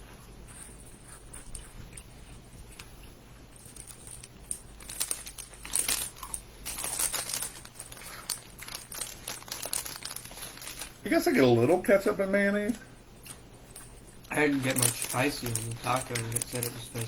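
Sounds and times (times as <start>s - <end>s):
snack bag crinkling: 3.6s - 11.2s, 13.3s - 17.0s.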